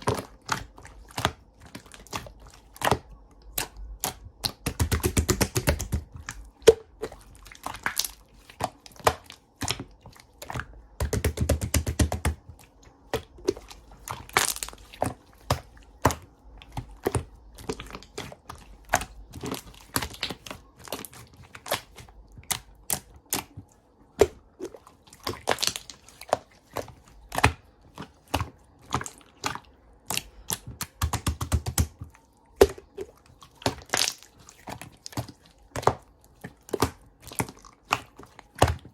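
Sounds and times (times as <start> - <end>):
slime squelching: 0.0 - 38.9
slime clicking and popping: 2.0 - 7.0, 32.6 - 34.3.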